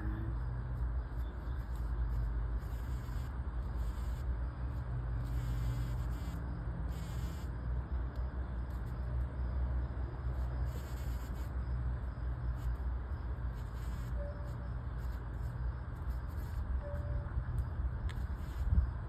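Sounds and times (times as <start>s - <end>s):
bee buzzing: 2.6s - 4.3s, 5.2s - 7.5s, 10.6s - 11.6s
steady low rumble: 11.6s - 19.0s.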